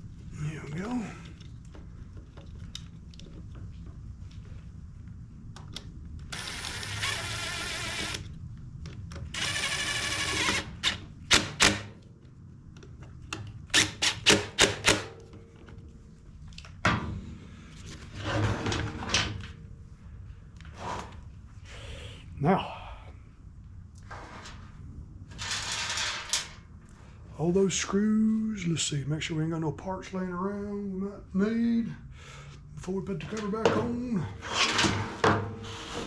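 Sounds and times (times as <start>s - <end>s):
power screwdriver whirring: 6.3s - 8.3s, 9.3s - 11.9s.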